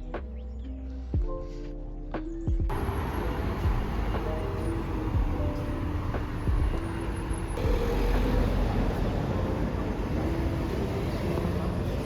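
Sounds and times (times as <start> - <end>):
low rumble of traffic: 2.7 - 12.0.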